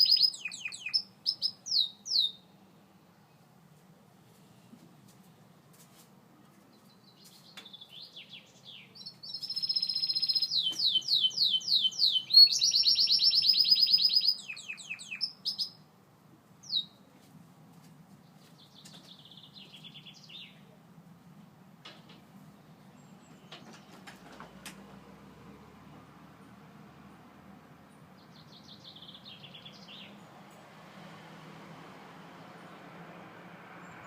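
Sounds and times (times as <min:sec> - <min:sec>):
canary singing trills: 0:00.0 - 0:02.5, 0:06.9 - 0:15.9, 0:16.6 - 0:17.0, 0:28.2 - 0:30.3.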